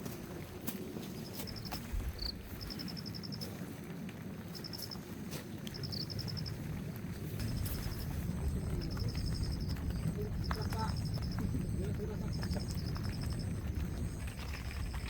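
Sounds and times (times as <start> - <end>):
low rumbling noise: 5.6 - 15.0
insect chirping: 5.8 - 6.6, 7.4 - 15.0
sharp ticks: 7.4 - 15.0.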